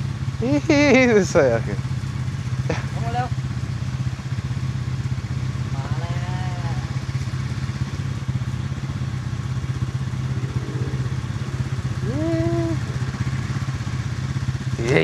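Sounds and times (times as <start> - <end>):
quad bike engine running: 0.0 - 15.0
short pitched calls: 5.6 - 15.0.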